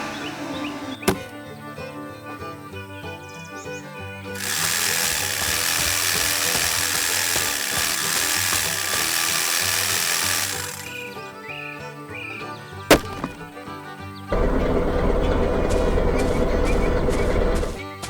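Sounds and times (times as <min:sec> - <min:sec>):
machine buzzing rattle: 0:04.4 - 0:11.1, 0:14.4 - 0:17.8.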